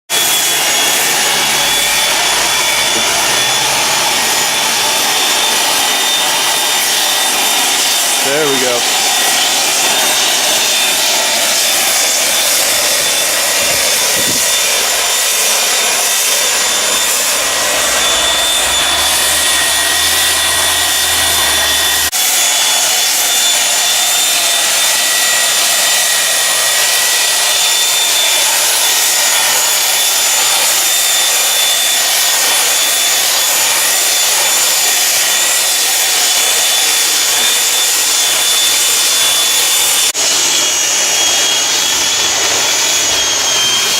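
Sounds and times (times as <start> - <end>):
power sander on wood: 0.1 - 43.9.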